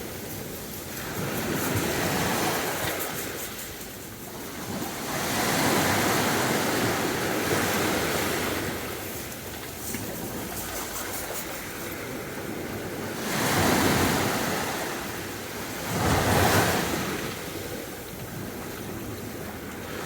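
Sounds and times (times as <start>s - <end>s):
steady wash of surf: 0.0s - 20.0s
waves crashing: 0.0s - 20.0s.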